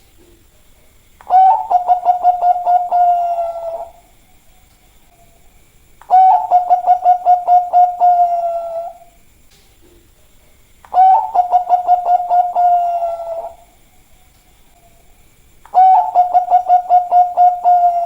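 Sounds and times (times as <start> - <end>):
dove cooing: 1.2 - 4.2, 6.0 - 9.1, 10.9 - 13.8, 15.7 - 18.0.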